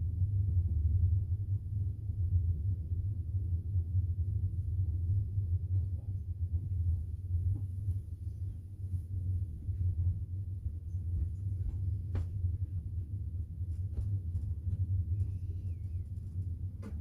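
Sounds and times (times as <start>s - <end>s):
train rumble from inside carriage: 0.0s - 17.0s.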